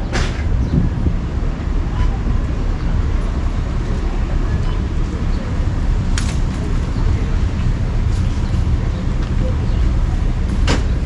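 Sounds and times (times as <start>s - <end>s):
low rumble of street noise: 0.0s - 11.0s.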